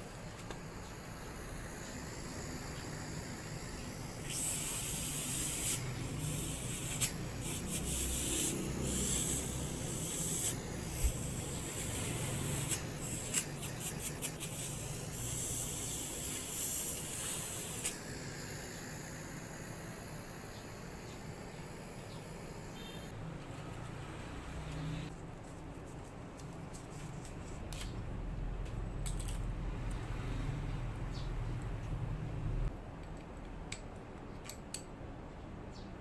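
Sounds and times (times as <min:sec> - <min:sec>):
hissing spray from pressure washer: 0:00.6 - 0:23.1.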